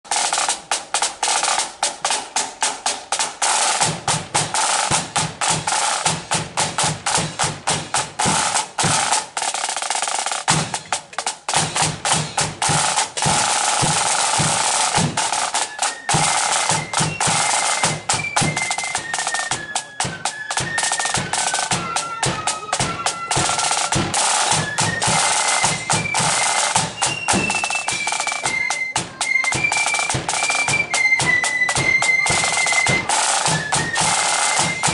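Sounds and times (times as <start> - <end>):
snare drums rolling march beat: 0.1 - 34.9
bass drum: 3.8 - 9.4, 10.4 - 15.4
flutes playing melody: 11.5 - 34.9.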